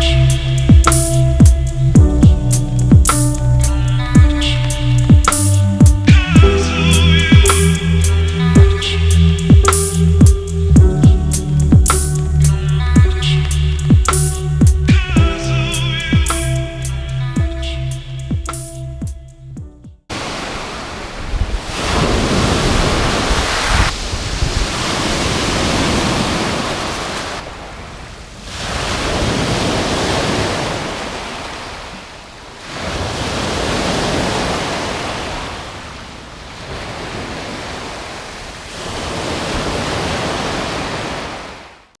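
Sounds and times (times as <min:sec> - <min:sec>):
sea waves breaking on shore: 0:20.1 - 0:41.9.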